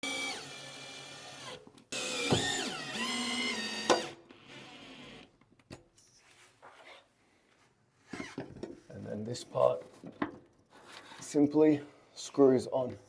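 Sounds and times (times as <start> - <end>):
cordless drill whining: 0.0 - 5.3.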